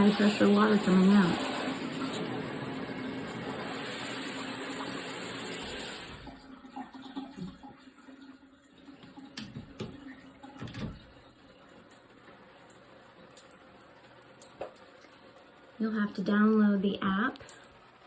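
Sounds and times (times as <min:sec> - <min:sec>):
showerhead spraying water: 0:00.0 - 0:06.3.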